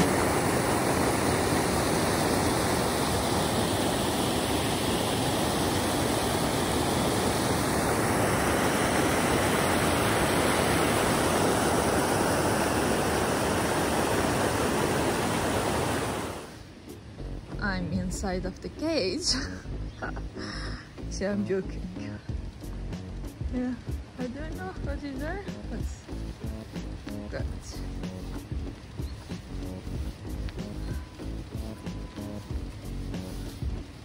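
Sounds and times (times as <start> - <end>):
falling water rushing: 0.0 - 17.2, 17.8 - 34.0.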